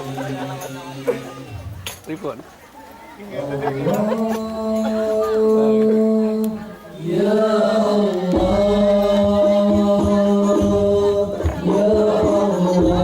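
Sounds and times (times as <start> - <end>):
voices chanting long notes: 3.4 - 13.0.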